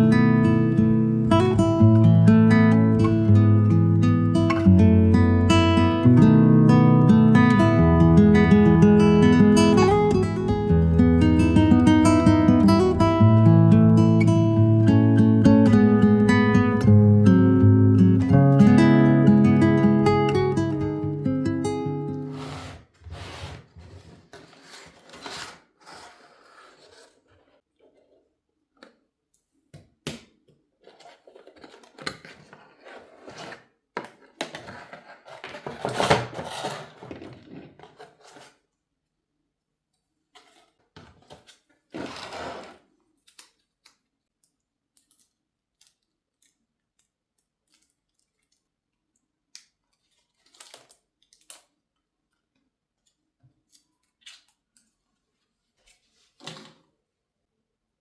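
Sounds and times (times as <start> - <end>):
objects rustling and scraping: 22.3 - 28.4, 30.8 - 38.7, 40.3 - 42.9.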